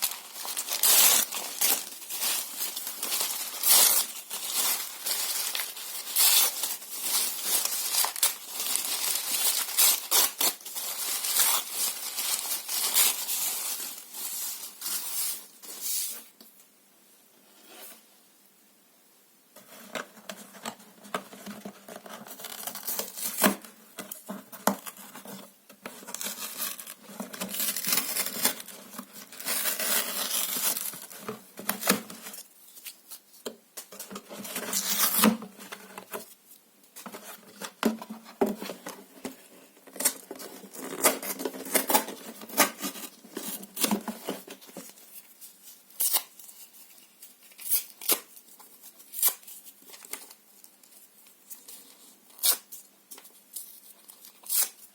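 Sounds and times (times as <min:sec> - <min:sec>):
paper and cardboard tearing: 0:00.0 - 0:13.9.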